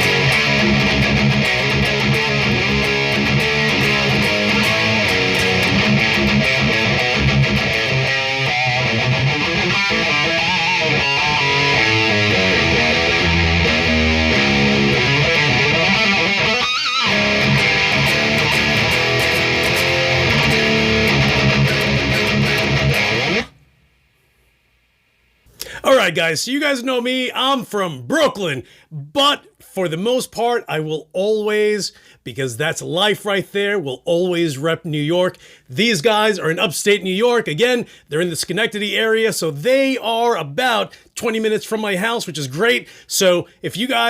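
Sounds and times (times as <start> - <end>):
distorted electric guitar riffs: 0.0 - 23.7.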